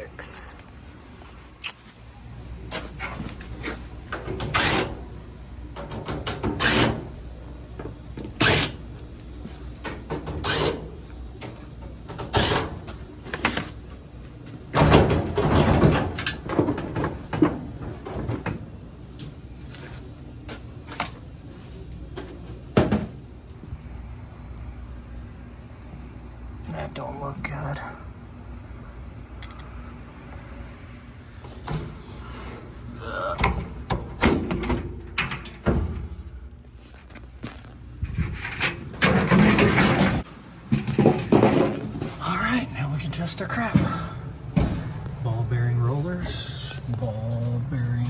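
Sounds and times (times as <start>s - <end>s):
sheet metal clunking and rattling: 2.6s - 19.5s, 22.1s - 23.3s, 31.3s - 36.7s, 38.0s - 42.7s, 43.5s - 45.2s.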